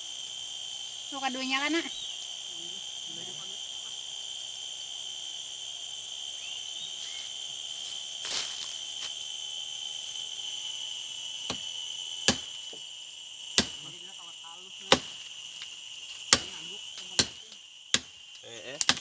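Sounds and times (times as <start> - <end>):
insects shrilling: 0.0 - 19.0.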